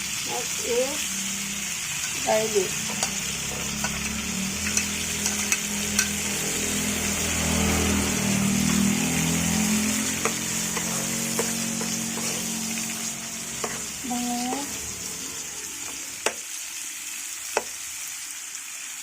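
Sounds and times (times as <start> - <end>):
garlic sizzling in a frying pan: 0.0 - 19.0
low hum: 1.0 - 16.3
utensil clicking against pan: 2.9 - 6.2.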